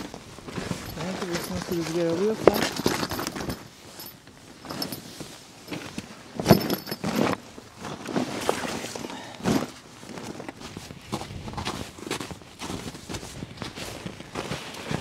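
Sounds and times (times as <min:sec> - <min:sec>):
knocks and clinks: 0:00.8 - 0:05.1, 0:06.4 - 0:07.2
footsteps on ice: 0:10.2 - 0:15.0.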